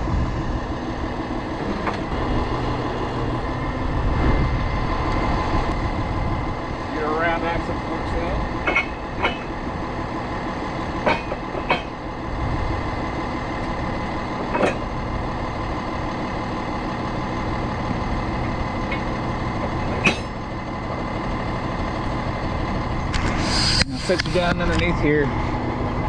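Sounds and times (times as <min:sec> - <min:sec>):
truck engine running: 0:00.0 - 0:26.0
sharp metal clanks: 0:08.6 - 0:09.6, 0:11.0 - 0:12.0, 0:19.8 - 0:20.5.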